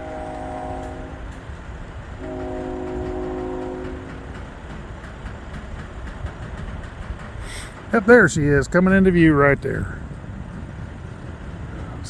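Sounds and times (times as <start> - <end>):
locomotive air horn: 0.0 - 1.5, 2.2 - 4.3
freight train rumbling on rails: 0.0 - 12.0.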